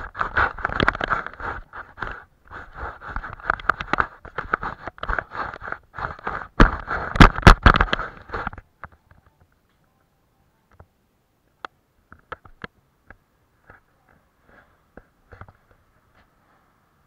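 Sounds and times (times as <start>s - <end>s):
brush scraping on paper: 0.0s - 8.6s.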